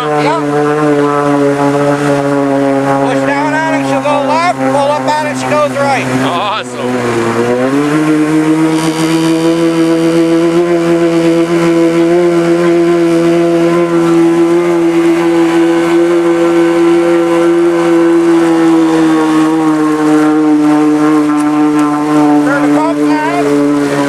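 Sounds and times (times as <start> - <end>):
boat engine running: 0.0 - 24.0.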